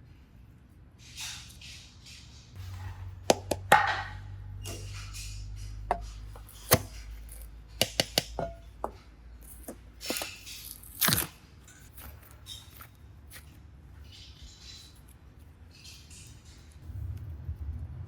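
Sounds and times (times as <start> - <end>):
tools tapping clay: 3.3 - 7.1, 7.8 - 10.3.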